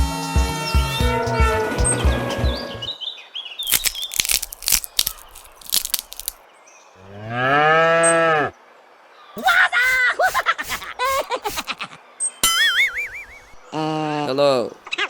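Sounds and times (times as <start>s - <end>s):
crunching clicks: 3.6s - 6.4s
cow mooing: 7.0s - 8.5s.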